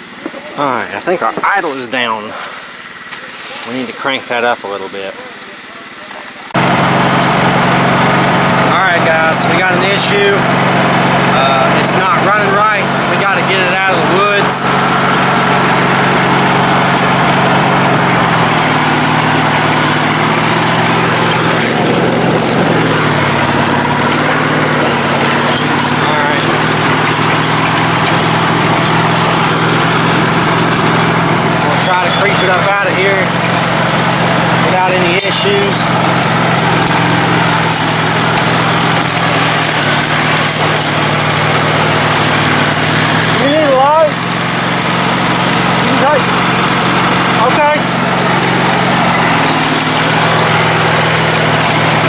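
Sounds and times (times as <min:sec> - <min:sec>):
riding mower engine running: 0:00.0 - 0:52.0.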